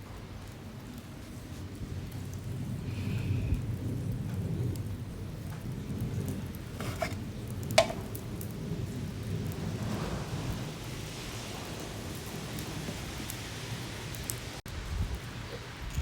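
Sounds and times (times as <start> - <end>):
campfire crackling: 0.0 - 16.0
fire sharp pops: 5.5 - 14.6.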